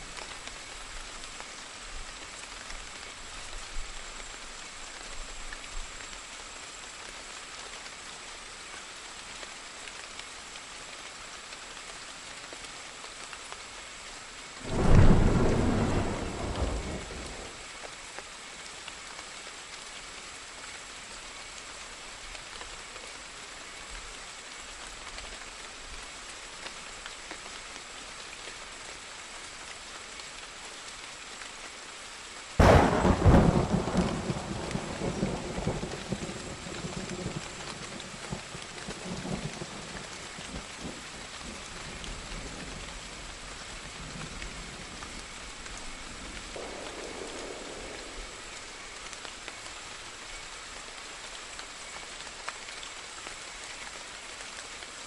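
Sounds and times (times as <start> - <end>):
steady rain: 0.0 - 55.0
thunder claps rumbling: 14.6 - 17.6, 32.6 - 40.0, 46.4 - 49.3.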